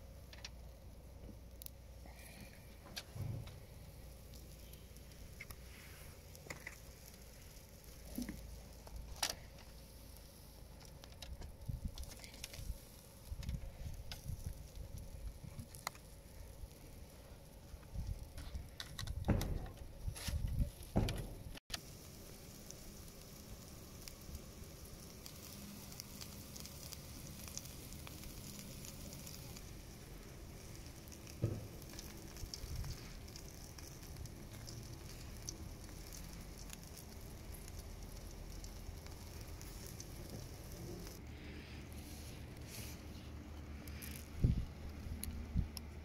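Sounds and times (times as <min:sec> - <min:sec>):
meat sizzling in a pan: 0:03.1 - 0:18.7, 0:20.5 - 0:41.2.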